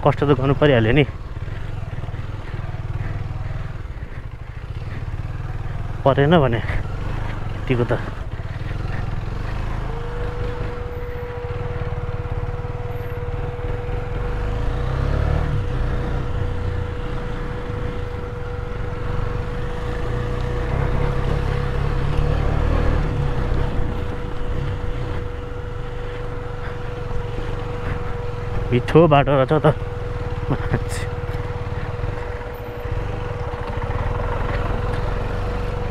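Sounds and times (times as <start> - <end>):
motorcycle engine running: 0.0 - 35.9
steady whine: 15.4 - 35.9.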